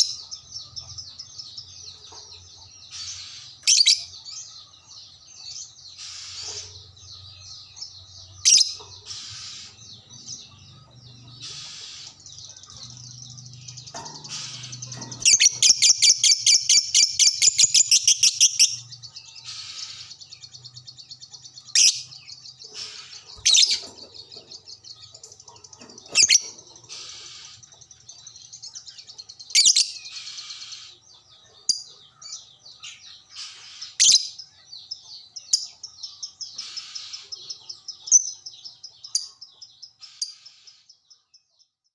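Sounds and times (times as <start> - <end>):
loud rapid bird trill: 0.0 - 41.0
sharp shrill bird calls: 5.6 - 7.0, 8.4 - 31.0, 31.7 - 40.9
lovebird chattering: 11.3 - 30.9.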